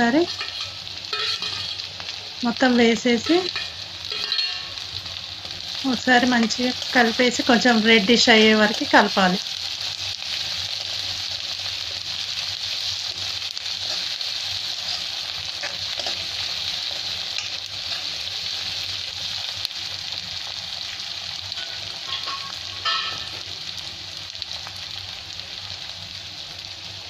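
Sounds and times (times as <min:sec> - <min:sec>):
steel spoon scraping a pan: 0:00.0 - 0:02.2, 0:03.1 - 0:05.0, 0:13.8 - 0:18.2, 0:21.5 - 0:23.4
onions sizzling in hot oil: 0:00.0 - 0:27.0.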